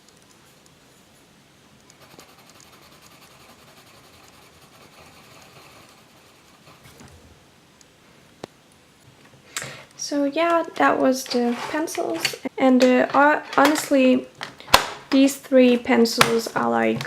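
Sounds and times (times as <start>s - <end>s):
pencil scratching on paper: 2.0s - 7.0s.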